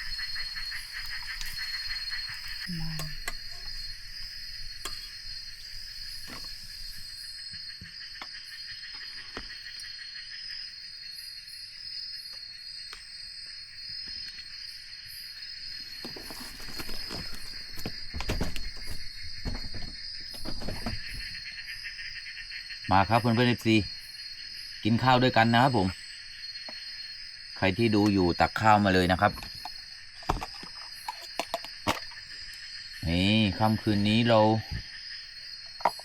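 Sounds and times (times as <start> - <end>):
insects trilling: 0.0 - 36.0
knocks and handling sounds: 16.0 - 21.3, 29.3 - 32.2, 35.7 - 36.0.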